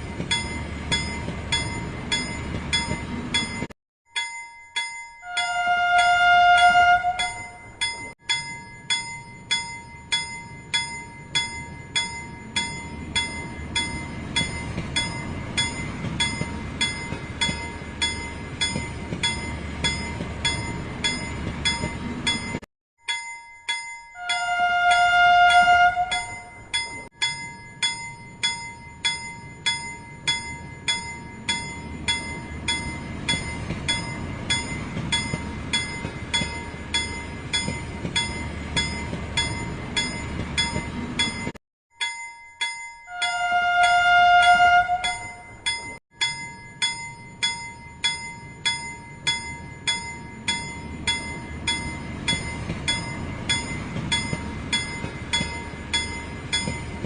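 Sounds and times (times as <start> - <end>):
toy train whistle: 5.2 - 7.4, 24.2 - 26.4, 43.1 - 45.4.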